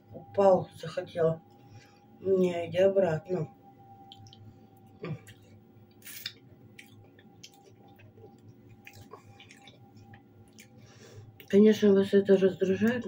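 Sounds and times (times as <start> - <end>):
faint steady hum: 0.0 - 13.0
mouth clicks: 4.1 - 4.4, 5.0 - 10.8
person chewing: 4.1 - 11.5.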